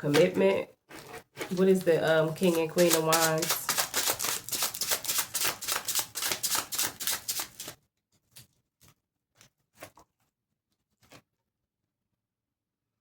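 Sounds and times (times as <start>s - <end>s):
cards being shuffled: 1.5s - 7.8s.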